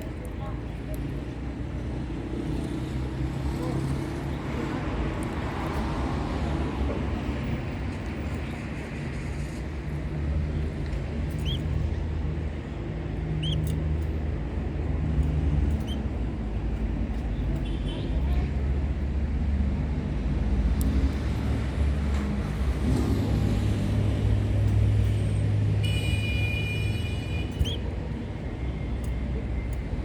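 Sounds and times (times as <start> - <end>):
canary chirping: 11.3 - 11.8, 13.4 - 13.8, 15.7 - 16.1, 27.5 - 27.8.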